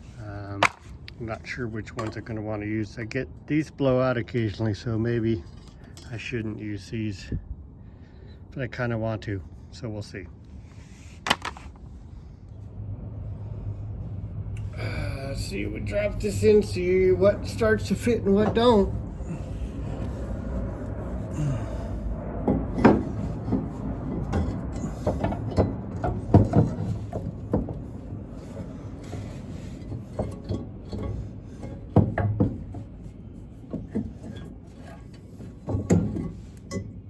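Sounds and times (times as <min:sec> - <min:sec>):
metal knocks and scrapes: 0:15.5 - 0:21.3, 0:21.9 - 0:37.0.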